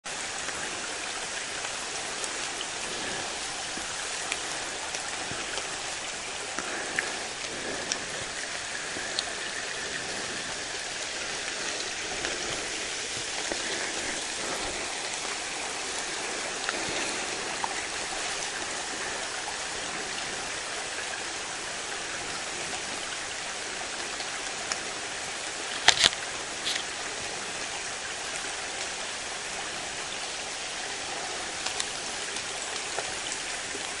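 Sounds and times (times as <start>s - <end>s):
insects chirping: 0.2s - 23.9s.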